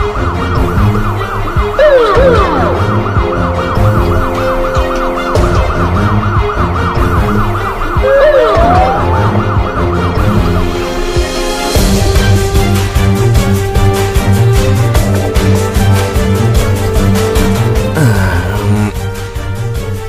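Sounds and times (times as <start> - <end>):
background music: 0.0 - 20.0
police siren yelping: 0.2 - 11.0.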